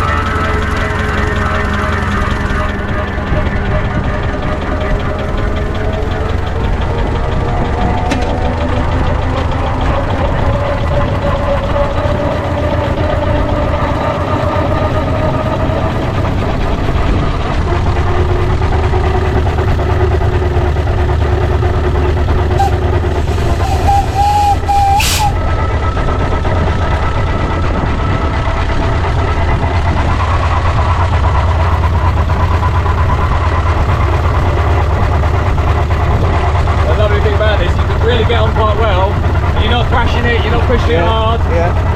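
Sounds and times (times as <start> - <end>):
steam wagon low rumble: 0.0 - 41.9
sharp steam hiss: 22.6 - 25.4.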